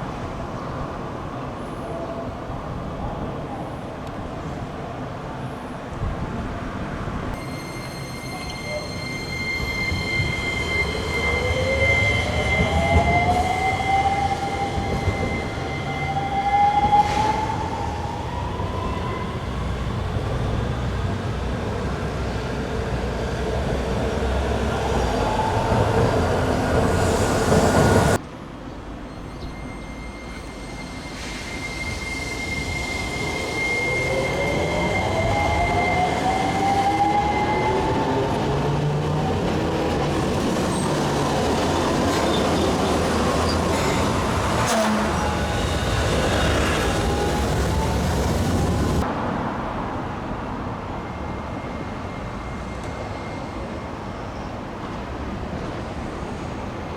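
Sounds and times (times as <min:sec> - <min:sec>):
wheels rumbling on rail: 0:02.9 - 0:56.9
tram motors whining: 0:07.3 - 0:28.2, 0:29.5 - 0:49.1.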